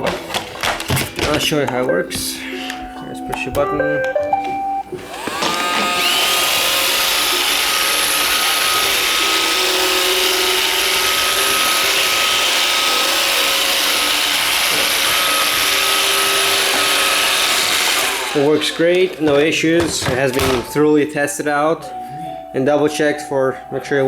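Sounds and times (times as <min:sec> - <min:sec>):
robot vacuum whining and hissing: 0:05.0 - 0:18.8.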